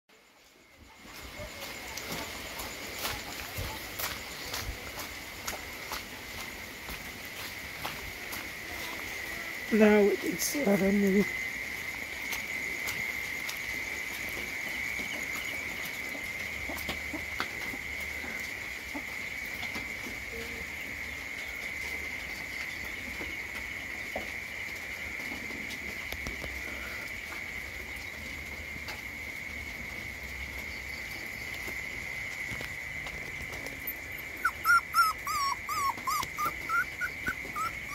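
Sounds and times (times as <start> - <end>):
insects trilling: 0.1 - 37.9.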